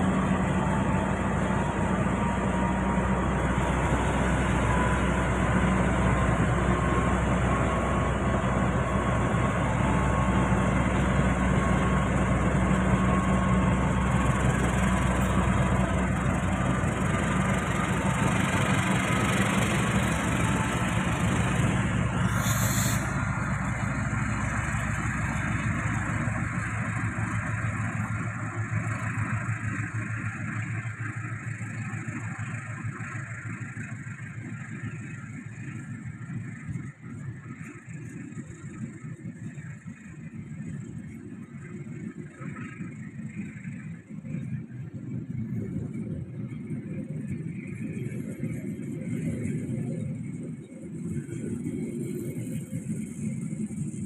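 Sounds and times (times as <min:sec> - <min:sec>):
diesel locomotive engine running: 0:00.0 - 0:54.0
short hiss: 0:22.2 - 0:23.3.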